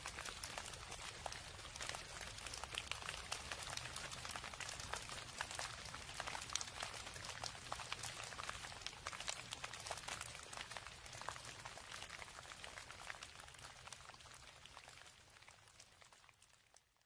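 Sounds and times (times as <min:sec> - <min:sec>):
raindrops ticking: 0:00.0 - 0:15.0
steady rain: 0:00.0 - 0:16.4.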